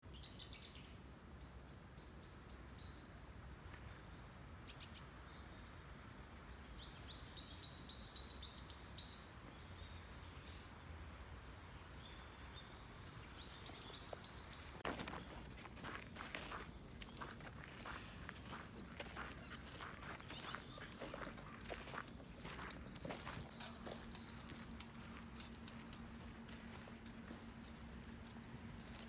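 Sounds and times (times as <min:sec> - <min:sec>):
outdoor background noise: 0:00.0 - 0:29.0
small songbird calling: 0:12.0 - 0:24.5.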